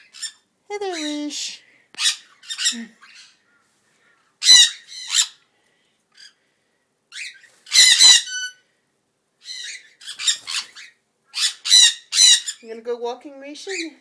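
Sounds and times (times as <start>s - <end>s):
cockatiels squawking: 4.4s - 5.4s, 7.2s - 8.6s, 9.4s - 12.6s.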